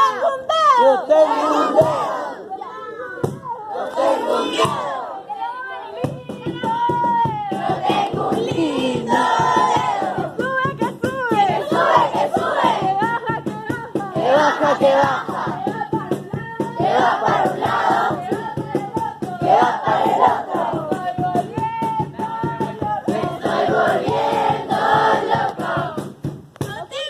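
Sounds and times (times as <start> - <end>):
group singing together: 0.0 - 2.5, 3.6 - 5.4, 7.3 - 26.1
music: 6.0 - 27.0.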